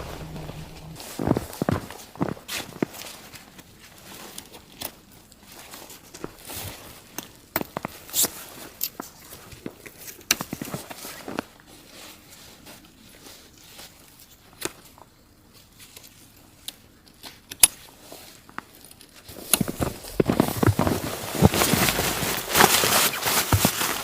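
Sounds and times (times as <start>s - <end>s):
rustling and knocking: 0.0s - 1.4s, 19.6s - 24.0s.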